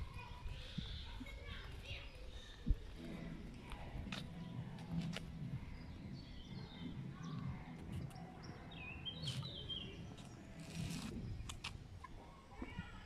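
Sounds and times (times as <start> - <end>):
small birds twittering: 0.0 - 12.7
low outdoor rumble: 2.7 - 13.0.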